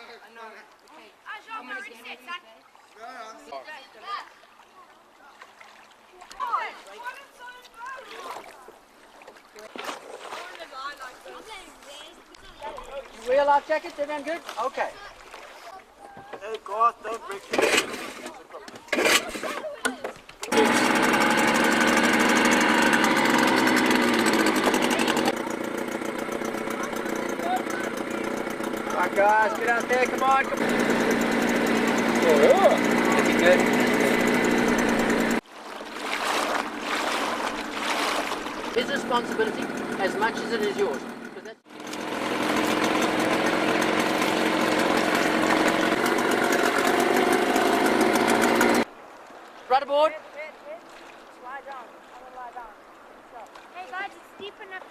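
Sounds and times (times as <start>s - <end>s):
motor boat engine running: 20.4s - 48.9s.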